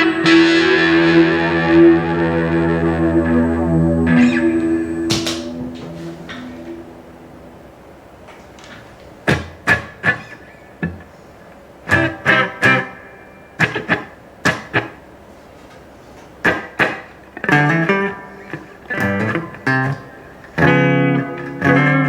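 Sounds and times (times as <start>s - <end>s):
electric guitar notes and chords: 0.0s - 7.9s, 17.5s - 22.0s.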